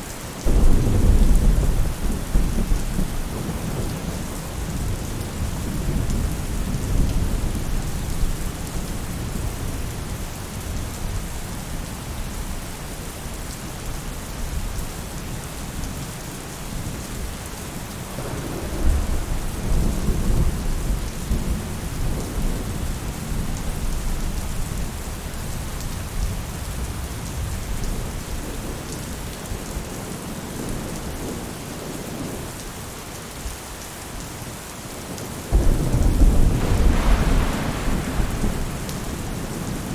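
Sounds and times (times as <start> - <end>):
rain falling on a roof: 0.0 - 39.9
low thunder rumbling: 0.4 - 10.1, 18.1 - 24.8, 35.5 - 39.9.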